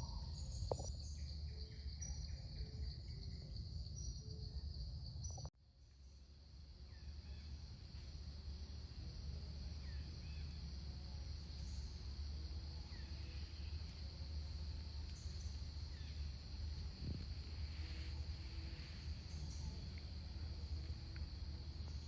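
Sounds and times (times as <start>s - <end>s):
insects droning: 0.0s - 22.0s
low steady rumble: 6.1s - 22.0s.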